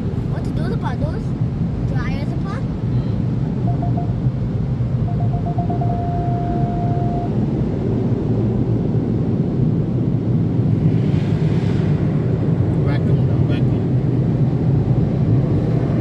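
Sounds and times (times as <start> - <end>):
thin pulsing tone: 3.6 - 4.2, 5.0 - 7.4.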